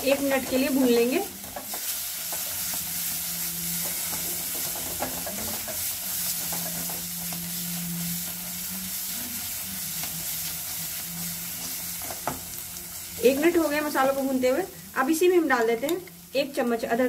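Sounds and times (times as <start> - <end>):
spices sizzling in oil: 0.0 - 17.0
spatula scraping a pan: 0.1 - 10.1.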